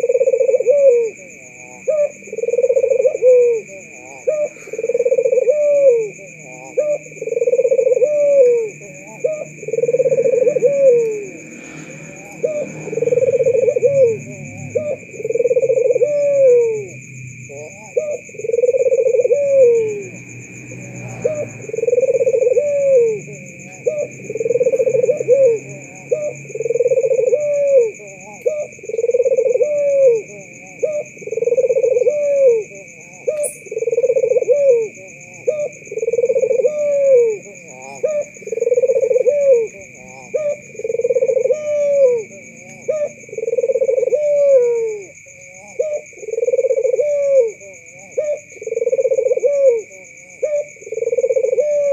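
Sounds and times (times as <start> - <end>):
dove cooing: 0.0 - 51.9.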